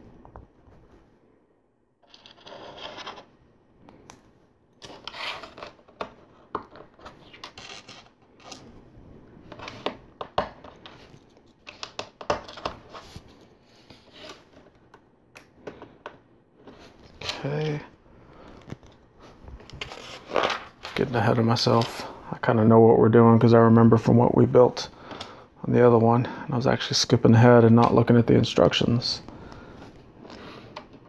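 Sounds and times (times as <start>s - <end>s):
plastic pieces scraping and rattling: 4.8s - 8.6s.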